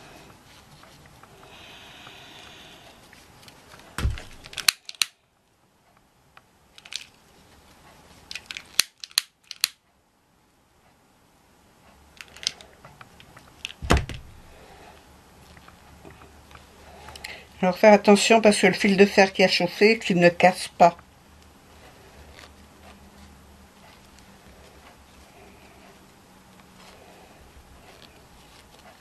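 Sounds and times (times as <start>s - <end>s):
craft materials clicking and snipping: 3.4s - 5.2s, 6.8s - 7.2s, 8.2s - 9.8s, 12.2s - 14.2s
dull thumps: 4.0s - 4.5s, 13.8s - 14.5s.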